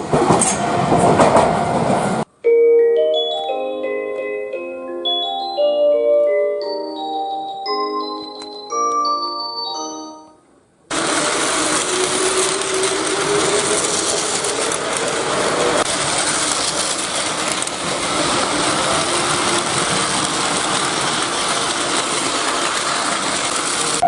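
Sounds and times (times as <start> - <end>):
train rattling on track: 0.0 - 2.3, 10.9 - 24.0.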